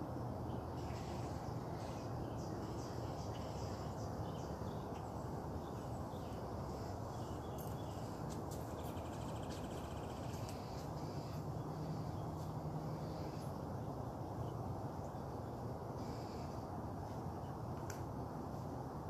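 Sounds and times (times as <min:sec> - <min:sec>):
bird calls and chirps: 0:00.5 - 0:13.4.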